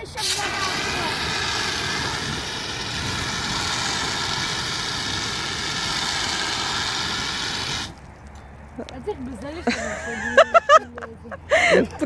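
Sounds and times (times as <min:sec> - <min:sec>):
fire extinguisher hissing: 0:00.1 - 0:08.0.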